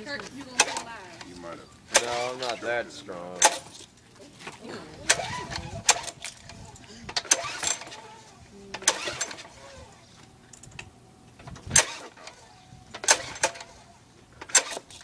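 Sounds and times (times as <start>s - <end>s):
pull-start rope rasping: 0.4s - 10.8s.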